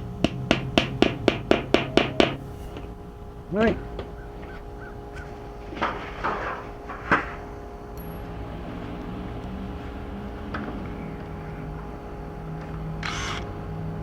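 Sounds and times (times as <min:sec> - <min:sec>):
power drill boring metal: 0:08.0 - 0:13.9.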